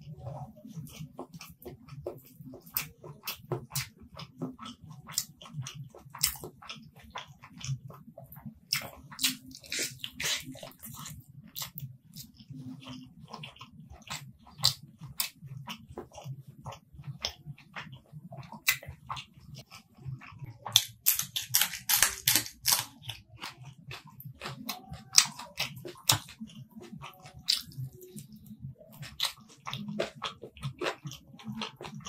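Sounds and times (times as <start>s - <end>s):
wet chewing: 0.0s - 32.0s
loud crunchy bites: 9.2s - 10.5s, 20.7s - 23.2s.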